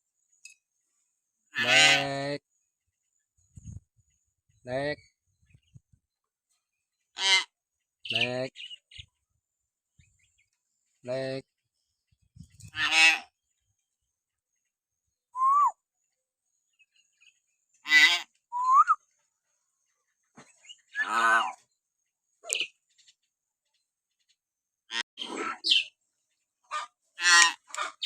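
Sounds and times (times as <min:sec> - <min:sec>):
myna bird whistles and calls: 0:15.3 - 0:15.8, 0:18.5 - 0:19.0.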